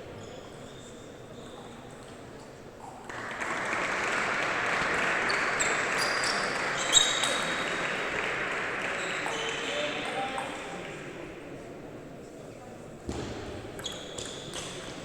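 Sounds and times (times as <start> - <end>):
audience applause: 3.1 - 6.8, 7.5 - 9.3.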